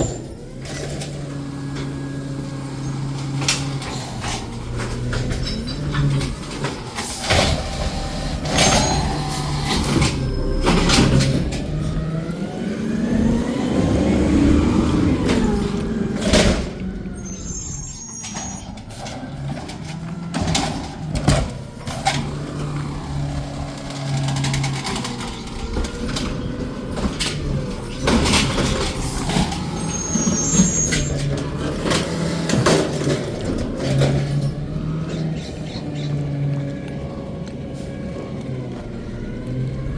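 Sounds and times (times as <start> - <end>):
garbage truck engine revving: 0.0 - 39.9
clanks and knocks: 3.0 - 12.3, 18.2 - 34.8
high squeals: 5.4 - 11.8, 17.1 - 19.5, 29.0 - 31.5.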